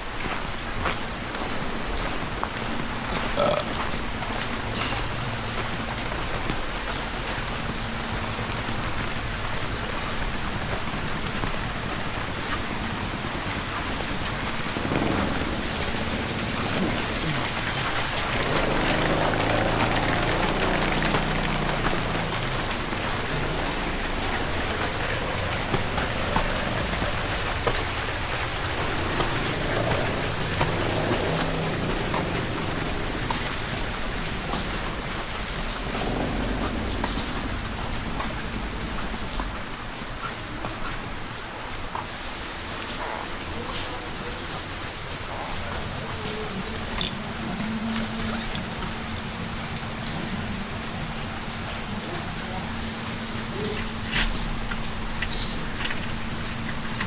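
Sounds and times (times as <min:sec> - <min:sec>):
steady rain falling: 0:00.0 - 0:57.0
low hum: 0:03.9 - 0:39.6.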